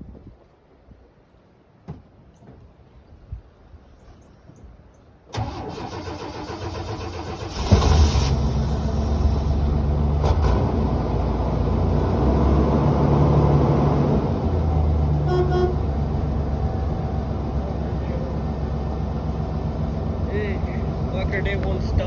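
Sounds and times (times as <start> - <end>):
engine cranking on starter: 5.3 - 11.3
engine running steadily: 5.4 - 22.0.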